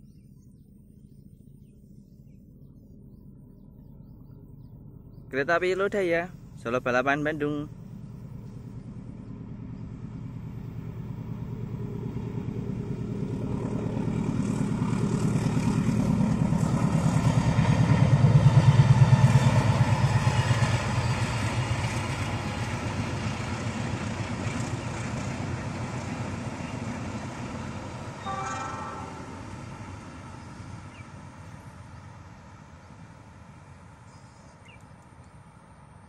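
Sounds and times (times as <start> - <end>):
diesel locomotive engine pulsing: 0.5 - 34.0
train coaches rolling past: 5.4 - 34.0.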